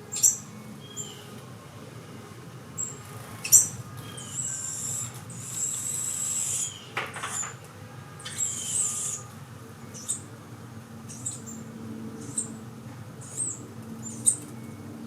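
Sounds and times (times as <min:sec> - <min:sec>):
nestlings hissing begging cries: 0:03.5 - 0:06.9, 0:08.2 - 0:09.3.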